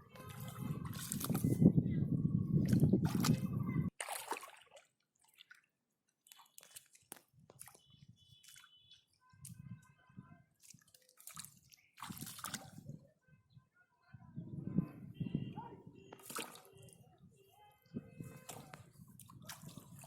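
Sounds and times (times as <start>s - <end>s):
hands in muddy water: 0.1s - 1.8s, 2.5s - 13.1s, 16.1s - 17.0s, 17.8s - 20.0s.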